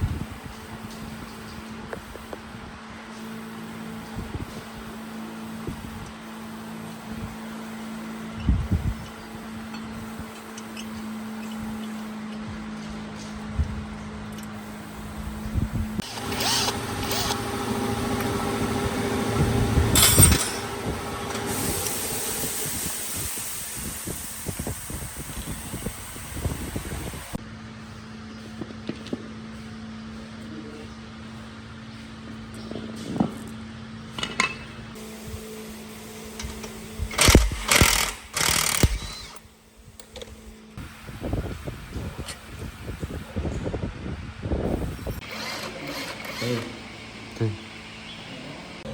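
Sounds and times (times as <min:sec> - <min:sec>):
electric power tool running: 0:04.9 - 0:27.4, 0:35.0 - 0:39.5, 0:44.7 - 0:47.5.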